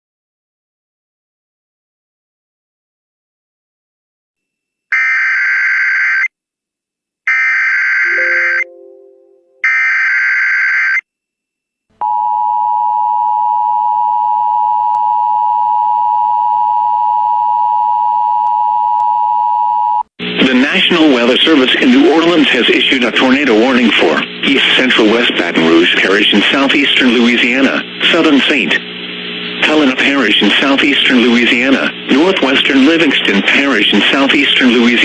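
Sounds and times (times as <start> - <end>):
two-tone alarm: 7.3 - 11.0.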